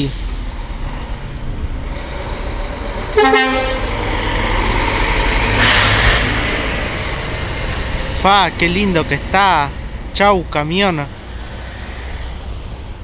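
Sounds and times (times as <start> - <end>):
truck engine rumble: 0.0 - 13.0
truck horn blast: 3.1 - 4.1
hissing air burst: 5.5 - 6.5.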